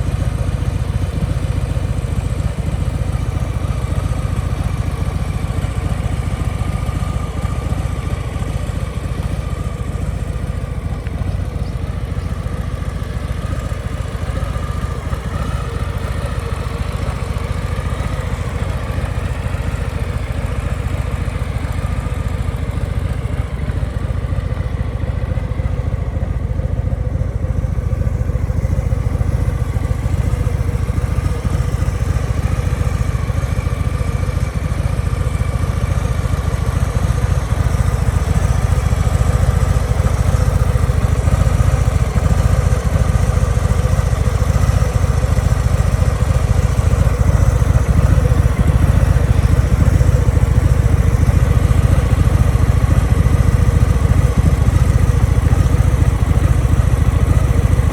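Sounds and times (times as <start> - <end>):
motorcycle engine idling: 0.0 - 57.9.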